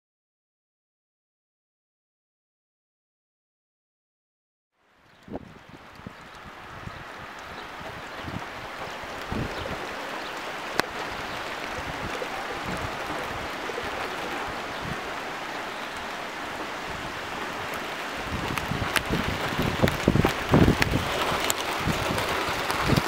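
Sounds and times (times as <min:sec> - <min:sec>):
steady rain falling: 0:04.8 - 0:23.0
wind buffeting microphone: 0:05.0 - 0:23.0.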